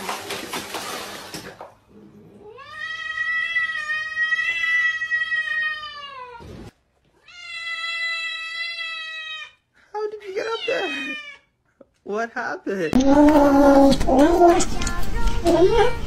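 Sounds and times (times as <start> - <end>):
water splashing: 0.0 - 1.9
cat yowling: 7.2 - 9.6, 10.4 - 11.5.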